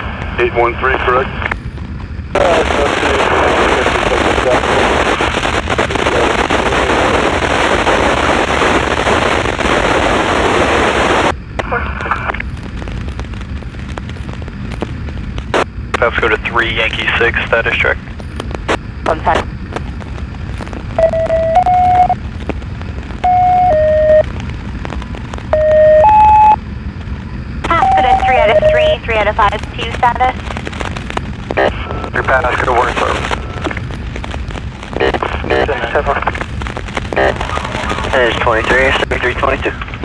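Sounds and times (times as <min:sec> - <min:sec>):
crackling radio static: 0:00.0 - 0:40.0
low rumble: 0:00.0 - 0:40.0
two-tone paging beeps: 0:21.0 - 0:22.2, 0:23.2 - 0:24.2, 0:25.6 - 0:26.6.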